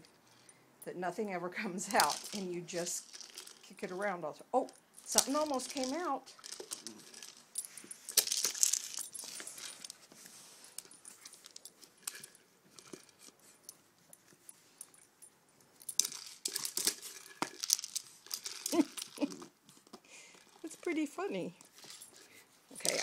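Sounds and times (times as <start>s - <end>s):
toy knocking and rattling: 1.9s - 3.8s, 4.6s - 10.0s, 15.8s - 23.0s.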